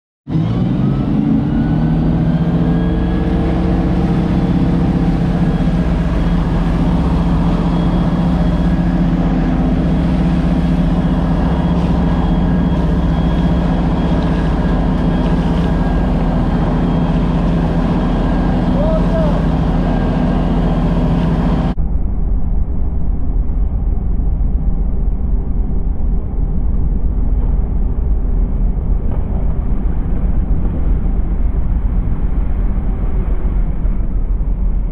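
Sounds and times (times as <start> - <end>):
water rushing: 0.3 - 21.8
motorboat engine humming: 0.3 - 34.9.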